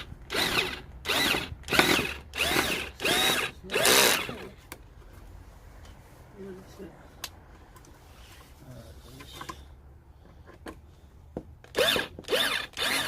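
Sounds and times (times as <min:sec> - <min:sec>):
power drill boring: 0:00.0 - 0:04.5, 0:11.7 - 0:13.0.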